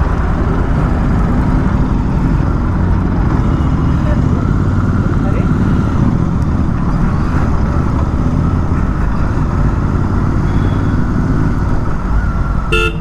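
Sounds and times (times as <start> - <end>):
motorcycle engine rumble: 0.0 - 13.0
short horn beep: 12.7 - 13.0.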